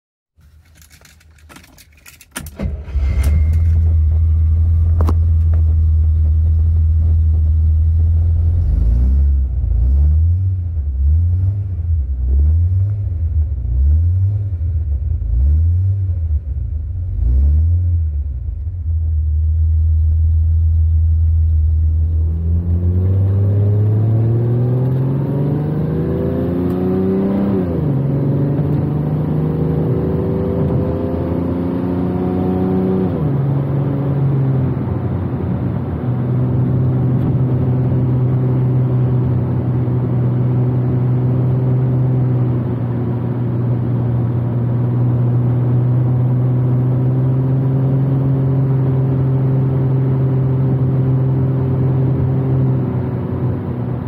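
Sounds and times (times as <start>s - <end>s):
car engine cranking: 0.4s - 6.8s
car engine idling and revving: 0.4s - 54.0s
car accelerating away: 22.0s - 54.0s.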